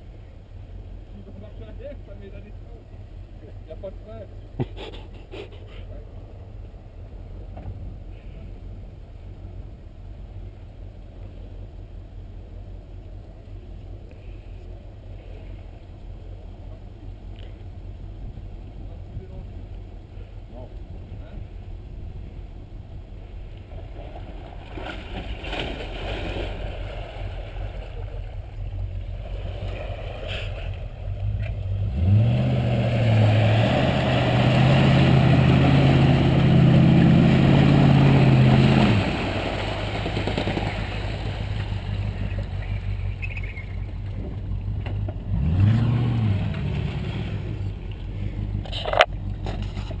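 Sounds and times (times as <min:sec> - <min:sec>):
car engine revving: 0:29.2 - 0:49.9.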